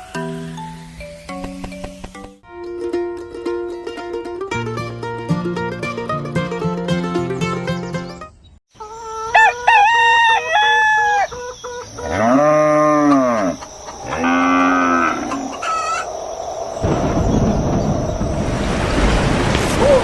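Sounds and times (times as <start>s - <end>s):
rooster crowing: 8.8s - 16.1s
cow mooing: 12.0s - 15.6s.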